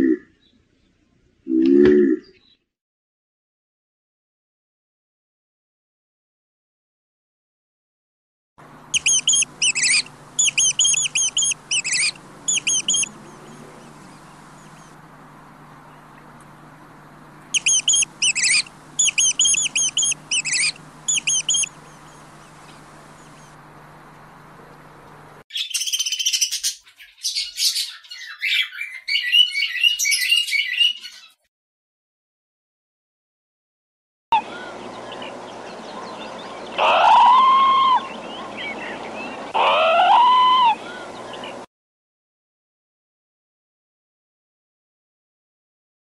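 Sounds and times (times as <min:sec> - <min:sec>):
low hum: 0:08.6 - 0:25.4
rapid high chirping calls: 0:08.9 - 0:14.9, 0:17.5 - 0:23.5, 0:25.5 - 0:31.3
budgerigars chattering and warbling: 0:08.9 - 0:15.0, 0:17.5 - 0:23.5.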